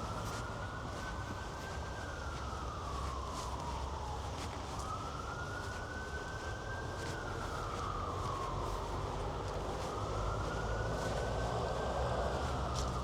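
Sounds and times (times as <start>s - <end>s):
city traffic rumble: 7.3s - 13.0s.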